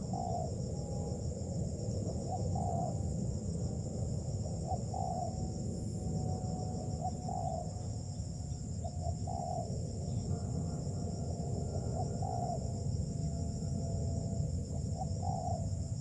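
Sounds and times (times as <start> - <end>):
dove cooing: 0.0 - 0.6, 2.0 - 3.0, 4.6 - 5.4, 6.9 - 7.8, 8.9 - 10.2, 11.6 - 12.8, 14.8 - 15.8
high insect drone: 0.0 - 16.0.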